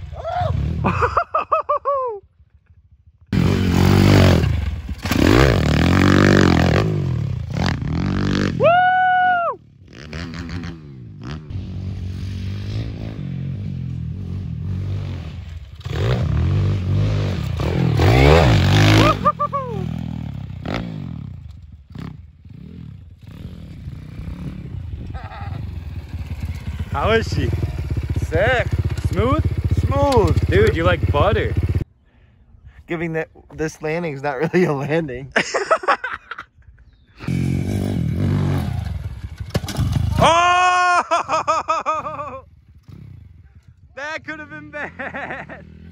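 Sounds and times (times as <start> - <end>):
pit bike engine revving: 3.3 - 8.6, 9.8 - 31.8, 37.2 - 40.5.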